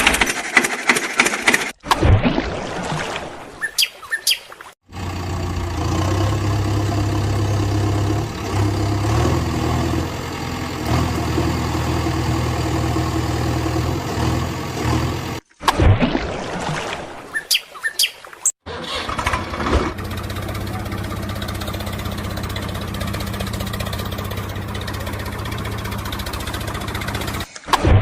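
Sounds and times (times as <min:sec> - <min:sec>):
birds chirping: 0:03.6 - 0:04.6, 0:17.3 - 0:18.5
vehicle engine idling: 0:04.9 - 0:15.4, 0:19.3 - 0:27.5.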